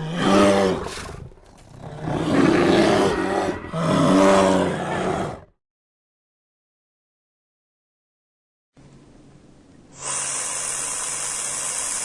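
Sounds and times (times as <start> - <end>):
animal roaring calls: 0.0 - 5.5.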